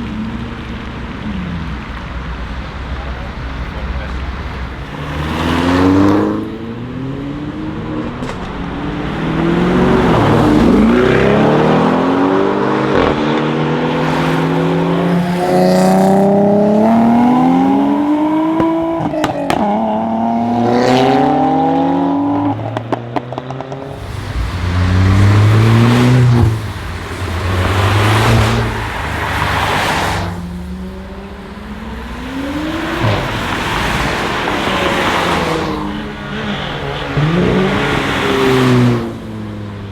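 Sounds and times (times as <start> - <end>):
car engine accelerating hard: 0.0 - 39.9
exhaust crackles: 23.8 - 39.4.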